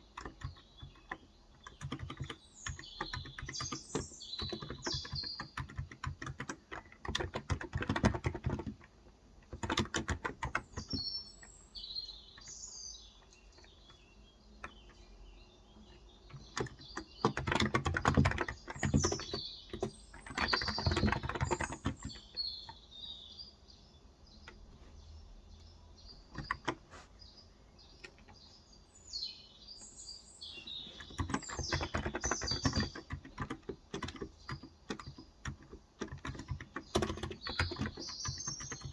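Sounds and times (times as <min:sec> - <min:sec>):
keyboard typing in bursts: 0:00.0 - 0:11.0, 0:15.9 - 0:22.9, 0:26.2 - 0:26.9, 0:30.5 - 0:38.9
birds chirping: 0:00.0 - 0:38.9.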